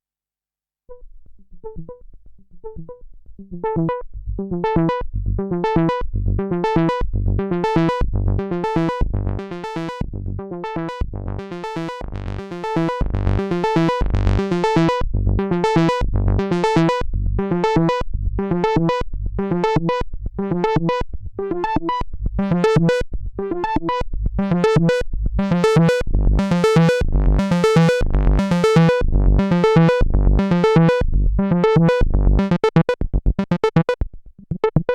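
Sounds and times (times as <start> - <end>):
synthesizer sequence: 25.6 - 31.0, 31.6 - 34.9.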